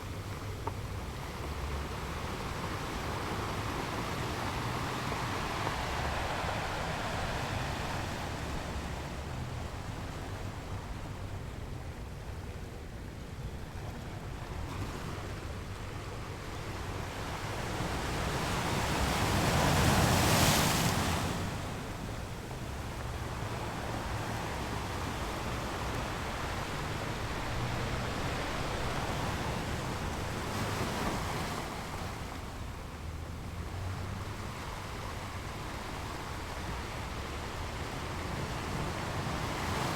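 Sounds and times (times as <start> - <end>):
ocean waves breaking: 0.7 - 12.1, 12.8 - 39.9.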